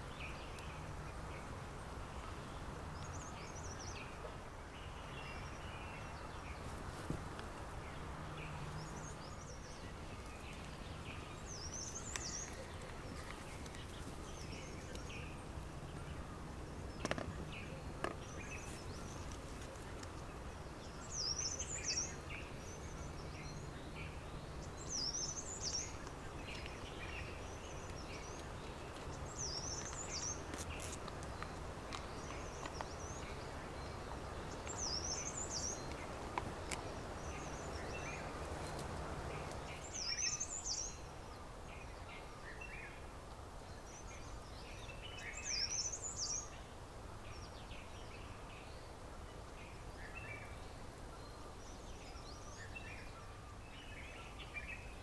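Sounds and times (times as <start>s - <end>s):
birds chirping: 0.0s - 43.0s
songbird singing: 0.0s - 55.0s.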